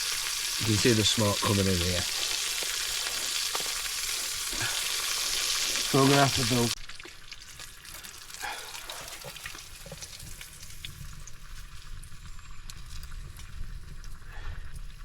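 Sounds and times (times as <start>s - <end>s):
burgers sizzling in a frying pan: 0.0s - 14.4s.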